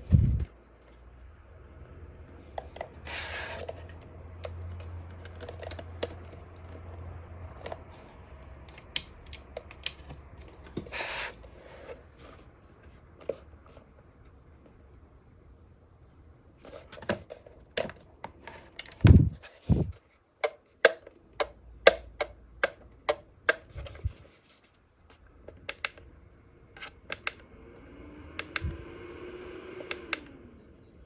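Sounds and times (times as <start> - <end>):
low steady hum: 0.0 - 20.4.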